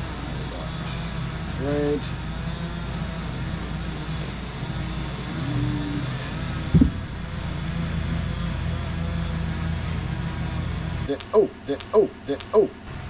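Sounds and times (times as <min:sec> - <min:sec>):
electric motor humming: 0:00.0 - 0:11.2.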